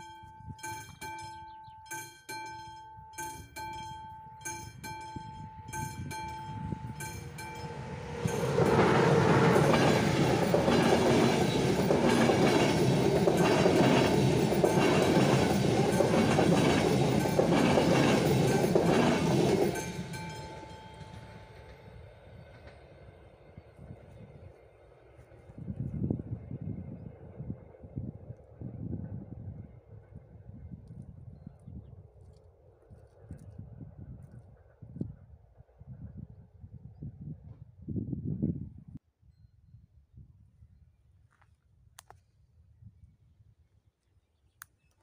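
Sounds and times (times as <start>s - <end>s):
level crossing bell ringing: 0.0s - 8.6s
wheels clattering on rails: 0.0s - 23.9s
train passing: 0.0s - 31.3s.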